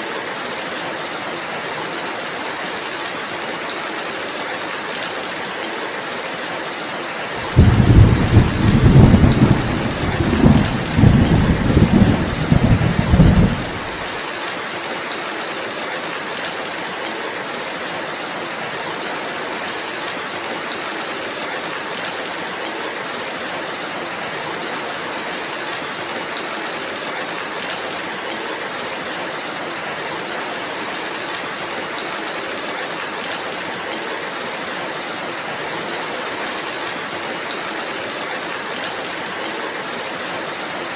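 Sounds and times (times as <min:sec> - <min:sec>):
steady rainfall: 0:00.0 - 0:40.9
thunder rumbling: 0:07.4 - 0:14.1.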